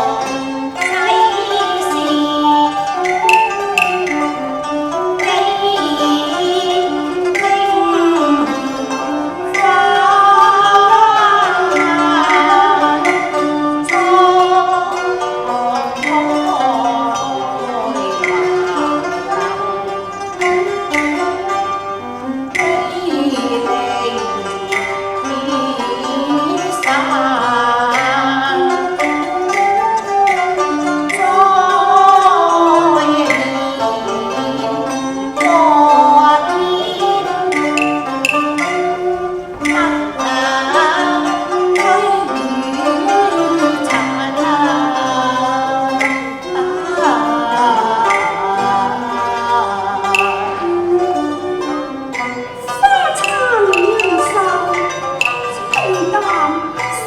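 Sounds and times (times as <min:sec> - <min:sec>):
bowed strings gliding melody: 0:00.0 - 0:57.0
sharp percussion strokes: 0:00.7 - 0:06.6, 0:36.8 - 0:42.8, 0:50.0 - 0:50.7, 0:52.2 - 0:57.0
person singing: 0:47.0 - 0:51.3, 0:52.7 - 0:57.0.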